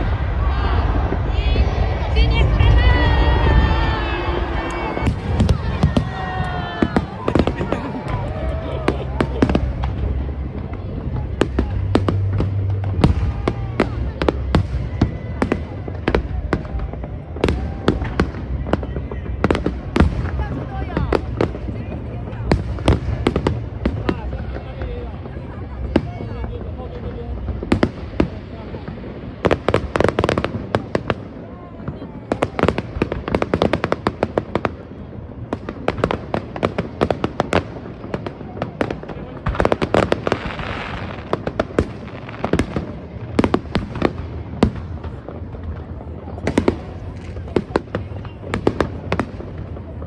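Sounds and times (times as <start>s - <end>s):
low rumble: 0.0s - 29.4s
fireworks bangs and cracks: 0.0s - 50.0s.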